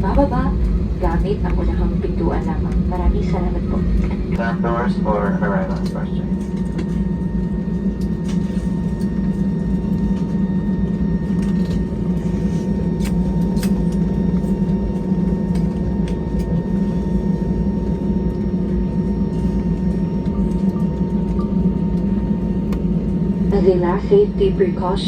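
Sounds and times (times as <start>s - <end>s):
airliner engine drone: 0.0s - 25.0s
thin steady whine: 0.0s - 25.0s
light clicks in cabin: 13.0s - 16.6s, 19.8s - 22.9s.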